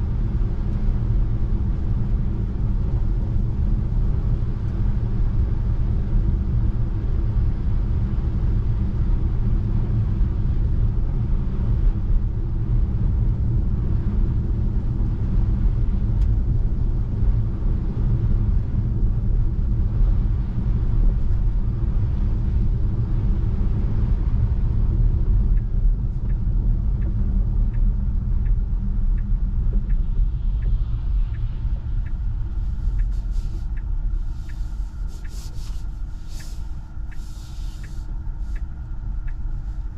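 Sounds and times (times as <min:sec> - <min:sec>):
turn signal ticking: 0:24.9 - 0:39.9.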